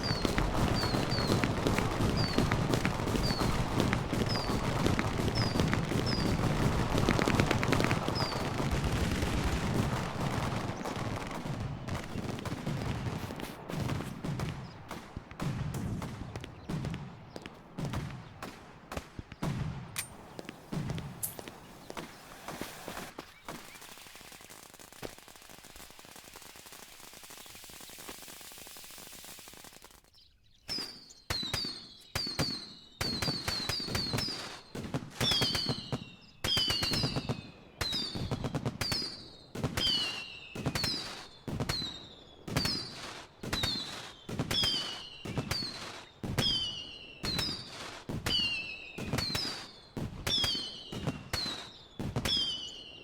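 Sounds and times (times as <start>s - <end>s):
fireworks bangs with whistles: 0.0s - 53.0s
fireworks hissing spray: 20.1s - 30.1s.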